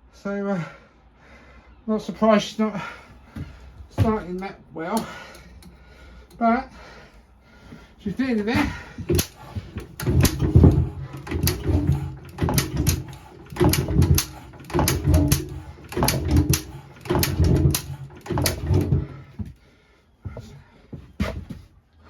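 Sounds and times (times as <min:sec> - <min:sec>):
engine being turned over by hand: 0:03.4 - 0:04.4, 0:08.3 - 0:19.6.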